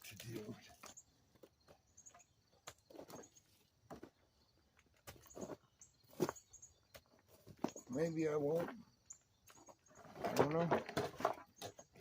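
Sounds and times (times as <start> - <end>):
faint bird chirps: 5.2 - 10.2.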